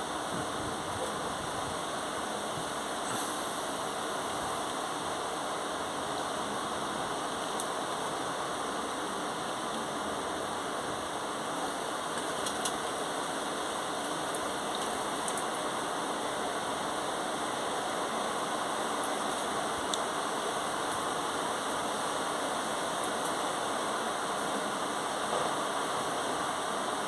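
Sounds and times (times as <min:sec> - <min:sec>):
heavy rain on rooftops: 0:00.0 - 0:27.0.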